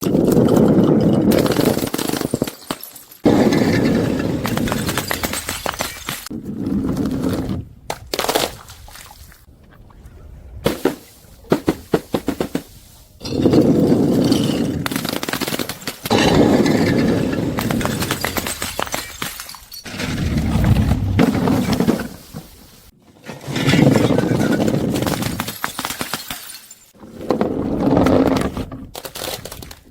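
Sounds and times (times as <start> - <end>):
objects crunching and cracking: 27.8 - 29.9.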